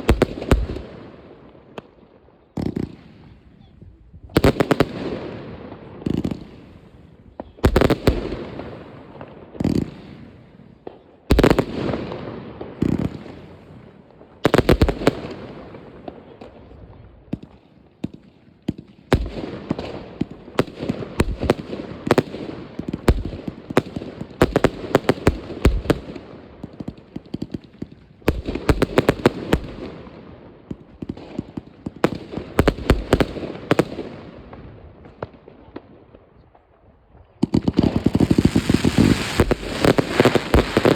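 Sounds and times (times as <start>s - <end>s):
fireworks bangs: 4.3s - 35.9s, 37.4s - 40.9s
firecrackers crackling: 17.4s - 35.5s, 37.4s - 40.9s.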